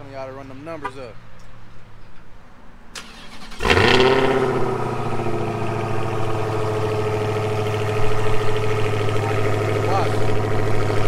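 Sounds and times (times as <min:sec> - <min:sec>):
car engine starting and idling: 0:02.9 - 0:11.0.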